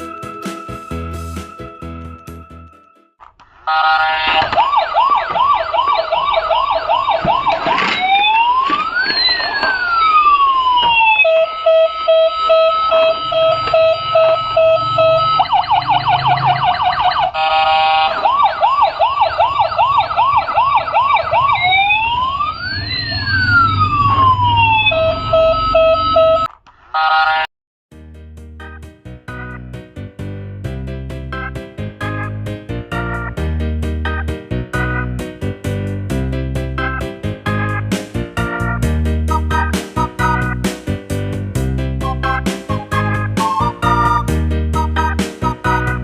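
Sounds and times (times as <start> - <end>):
electronic toy siren: 3.7 - 27.5, 42.0 - 46.0.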